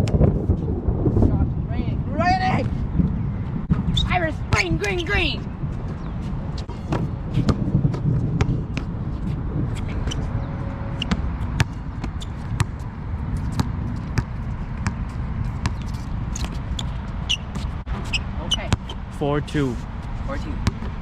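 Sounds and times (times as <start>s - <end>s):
steady low rumble: 0.0s - 21.0s
basketball bouncing on wet court: 13.5s - 15.0s, 20.6s - 20.9s.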